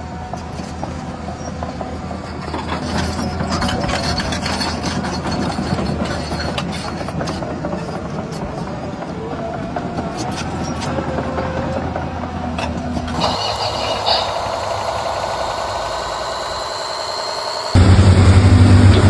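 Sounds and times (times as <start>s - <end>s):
gear noise: 12.6s - 19.0s
model vehicle motor hum: 12.6s - 19.0s.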